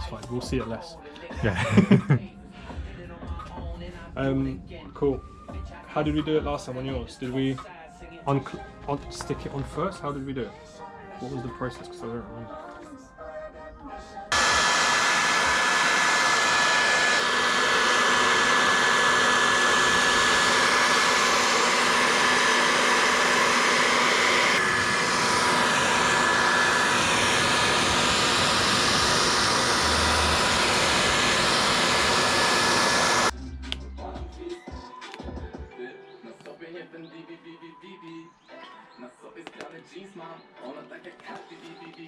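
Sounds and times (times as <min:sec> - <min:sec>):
hot-air blower fan rush: 0:14.3 - 0:33.4.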